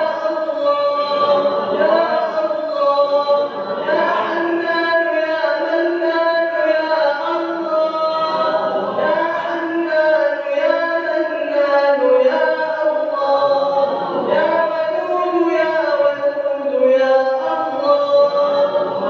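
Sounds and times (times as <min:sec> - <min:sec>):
melodic chanting voice: 0:00.0 - 0:19.0.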